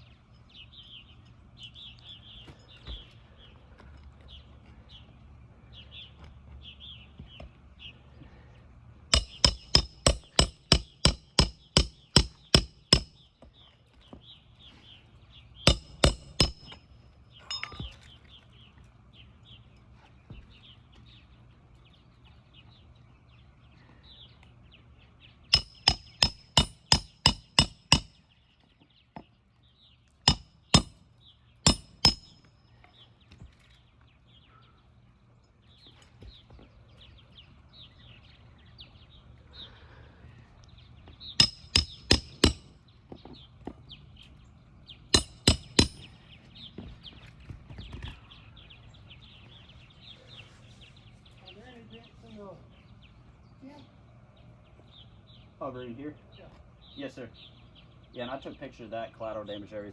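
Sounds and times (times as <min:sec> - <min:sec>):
birds chirping faintly: 0:00.0 - 0:59.9
hammer striking roofing nails: 0:09.1 - 0:13.3, 0:15.7 - 0:16.8, 0:25.6 - 0:28.2, 0:30.3 - 0:31.0, 0:31.7 - 0:32.5, 0:41.4 - 0:42.8, 0:45.2 - 0:46.1.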